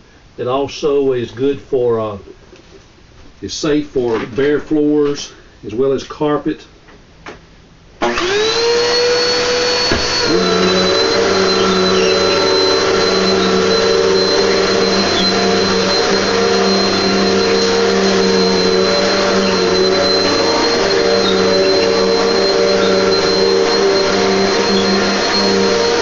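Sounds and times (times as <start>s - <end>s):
vacuum cleaner motor whine: 8.0s - 26.0s.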